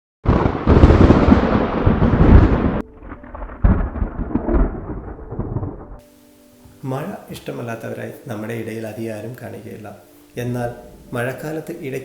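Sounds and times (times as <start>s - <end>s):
low rumble of thunder: 0.3s - 6.0s
sharp thunderclap: 0.3s - 6.0s.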